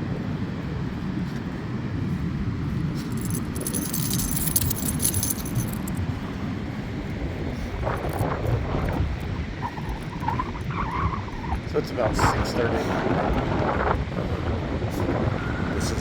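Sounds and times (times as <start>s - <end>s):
steady low rumble: 0.0s - 16.0s
light metallic jingling: 3.0s - 6.0s, 7.9s - 8.5s.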